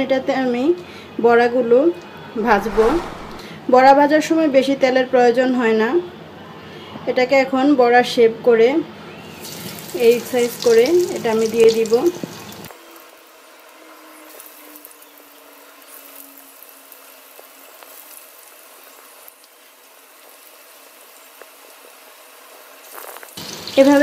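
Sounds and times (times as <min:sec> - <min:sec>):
fritters sizzling in oil: 0:09.3 - 0:12.7, 0:15.8 - 0:24.0.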